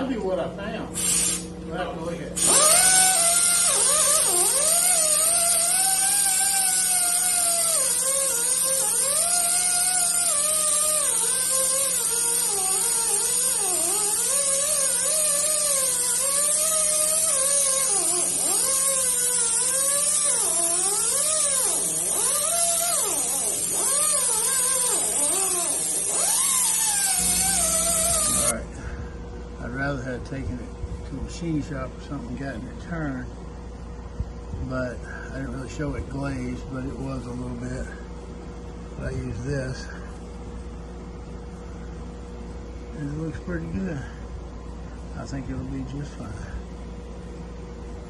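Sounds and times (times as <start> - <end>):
steady hiss: 1.0 - 1.5, 2.4 - 28.6
power tool motor grinding: 2.4 - 28.5.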